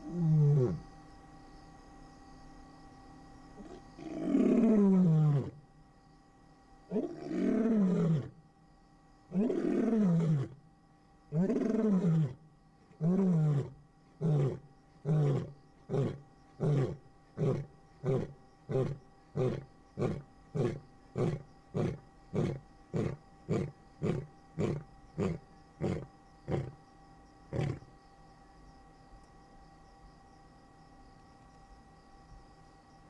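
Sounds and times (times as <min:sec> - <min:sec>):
lion roaring: 0:03.6 - 0:05.6, 0:06.9 - 0:08.4, 0:09.3 - 0:10.6, 0:11.4 - 0:26.8, 0:27.5 - 0:27.9
lion grunting: 0:11.4 - 0:26.8, 0:27.5 - 0:27.9.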